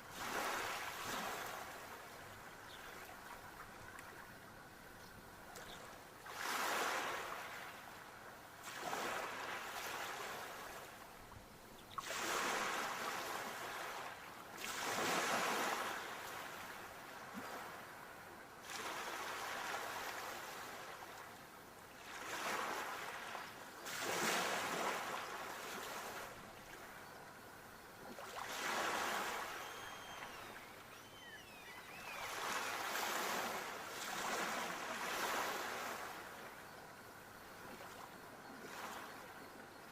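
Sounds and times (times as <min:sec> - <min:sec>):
sea waves breaking on shore: 0:00.0 - 0:02.1, 0:06.2 - 0:08.0, 0:08.6 - 0:11.0, 0:11.9 - 0:21.3, 0:22.0 - 0:27.0, 0:28.1 - 0:36.6
faint high chirping glides: 0:00.6 - 0:06.2, 0:23.2 - 0:39.9.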